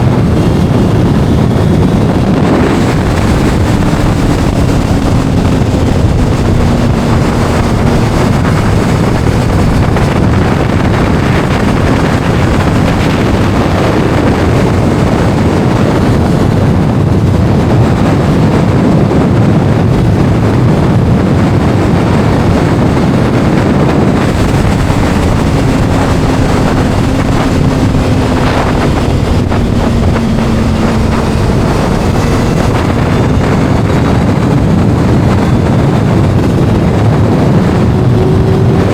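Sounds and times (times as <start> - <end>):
motorcycle engine revving: 0.0 - 38.9
wind rushing over microphone: 0.0 - 38.9.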